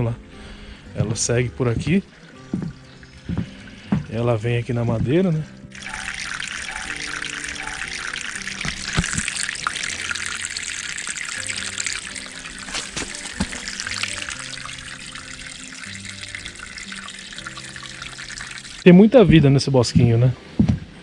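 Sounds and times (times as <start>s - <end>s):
soft background music: 0.0s - 21.0s
water splashing down wooden channel: 5.7s - 15.0s.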